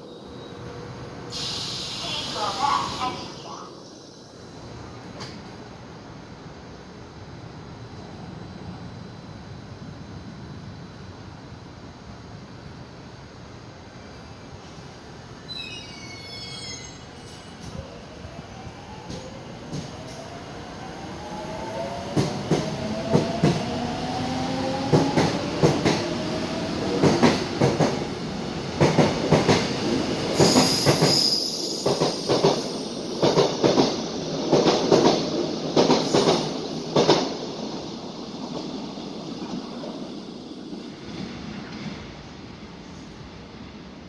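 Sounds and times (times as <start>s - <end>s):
high squeal: 15.4s - 17.8s.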